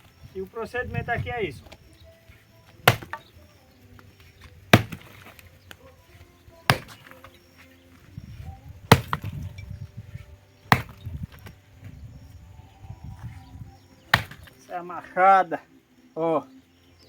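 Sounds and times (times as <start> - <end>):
axe chopping wood: 2.7 - 3.4, 4.0 - 5.9, 6.6 - 8.1, 8.8 - 11.6, 14.1 - 14.6.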